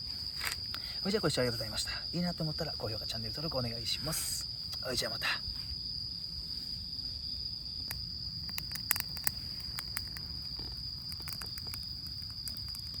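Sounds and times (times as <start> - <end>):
high-pitched insect trill: 0.0 - 13.0
campfire crackling and popping: 7.9 - 13.0.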